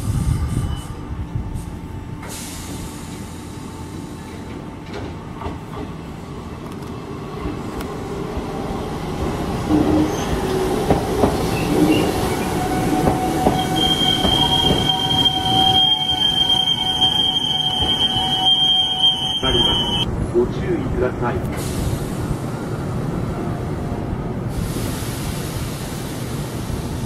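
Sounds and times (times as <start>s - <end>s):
train running noise: 0.0s - 27.0s
brake and wheel squeal: 13.4s - 20.0s.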